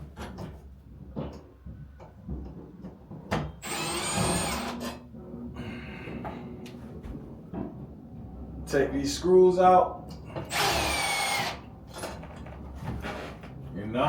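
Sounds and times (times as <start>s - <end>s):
cordless drill whining: 3.6s - 5.0s, 10.4s - 11.6s.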